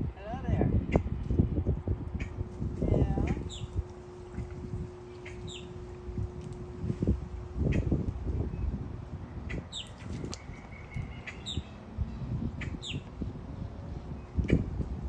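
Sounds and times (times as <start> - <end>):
bird chirping: 3.3 - 3.8, 5.0 - 5.8, 9.5 - 13.0.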